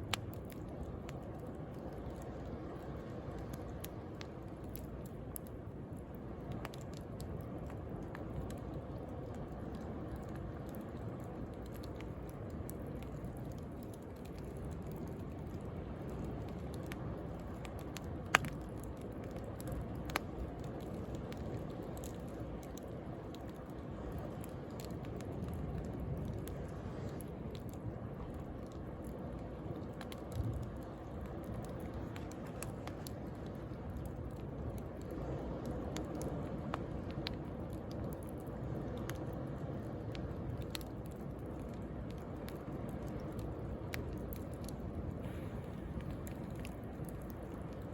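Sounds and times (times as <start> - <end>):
bonfire crackling and popping: 0.0 - 47.9
sea waves rushing: 45.2 - 47.8.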